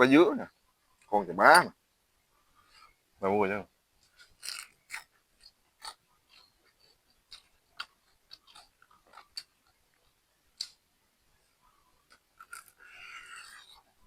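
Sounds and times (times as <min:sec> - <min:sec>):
chewing crunchy fried fish: 0:04.0 - 0:10.8, 0:11.4 - 0:14.0.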